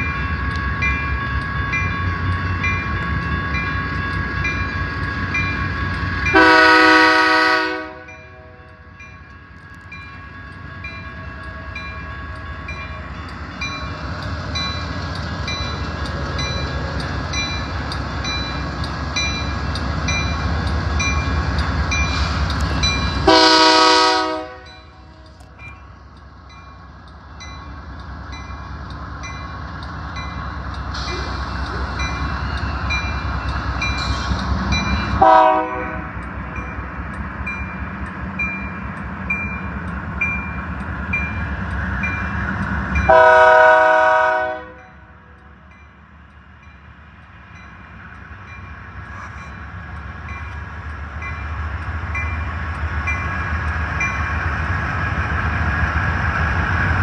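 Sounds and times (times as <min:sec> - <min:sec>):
crossing warning bell dinging: 0:00.0 - 0:57.0
locomotive engine rumble: 0:00.0 - 0:57.0
train horn blasts: 0:06.3 - 0:08.7, 0:23.2 - 0:25.4, 0:35.2 - 0:36.1, 0:43.1 - 0:45.1.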